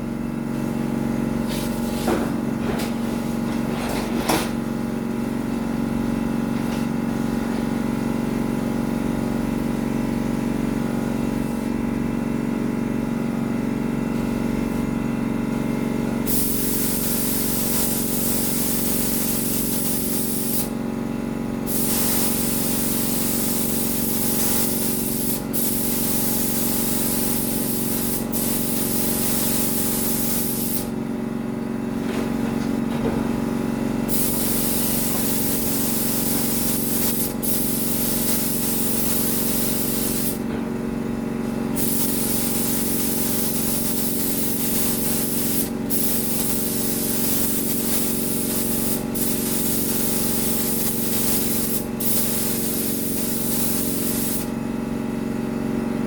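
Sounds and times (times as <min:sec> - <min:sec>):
paint spray gun hissing: 0:16.3 - 0:20.8, 0:21.7 - 0:30.9, 0:34.1 - 0:40.4, 0:41.8 - 0:54.6.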